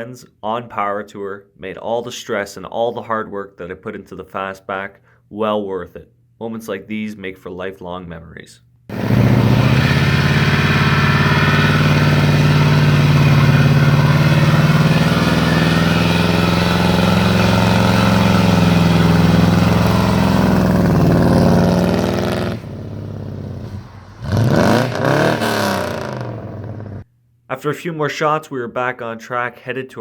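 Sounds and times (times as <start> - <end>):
car engine running: 8.9 - 27.0.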